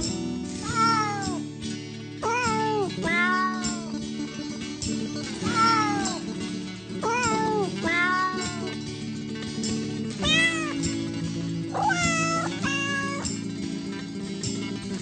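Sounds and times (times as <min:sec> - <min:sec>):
background music with low notes: 0:00.0 - 0:15.0
cat meowing: 0:00.6 - 0:01.4, 0:02.2 - 0:03.9, 0:05.4 - 0:06.2, 0:07.0 - 0:08.8, 0:10.2 - 0:10.8, 0:11.8 - 0:13.3.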